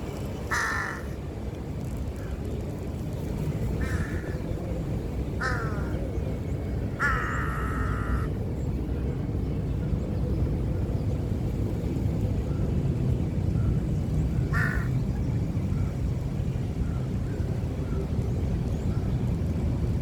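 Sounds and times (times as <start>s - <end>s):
bird cawing: 0.5s - 1.2s, 3.8s - 4.4s, 5.4s - 6.0s, 7.0s - 8.3s, 14.5s - 14.9s.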